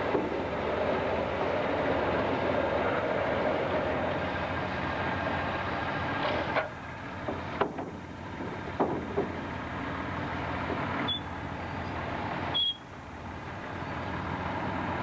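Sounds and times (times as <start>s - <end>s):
sharp knocks: 7.2s - 9.4s
short high squeak: 11.1s - 11.3s.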